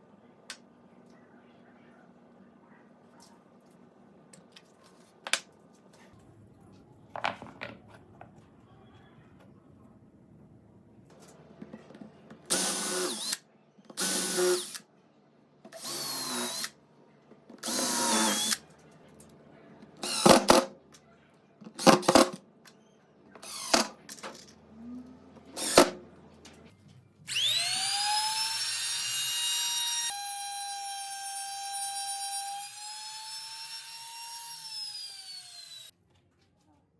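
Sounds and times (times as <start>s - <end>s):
power tool motor bursts: 27.3s - 35.9s.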